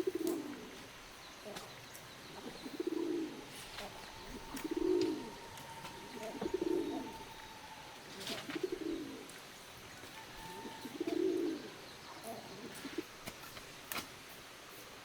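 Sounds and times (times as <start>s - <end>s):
dove cooing: 0.0s - 0.8s, 2.3s - 13.2s
faint high tone: 3.8s - 8.5s.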